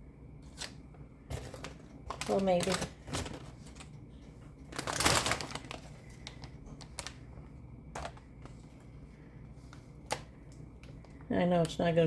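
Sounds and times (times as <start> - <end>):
plastic bag crinkling: 0.5 - 4.0, 4.6 - 8.8.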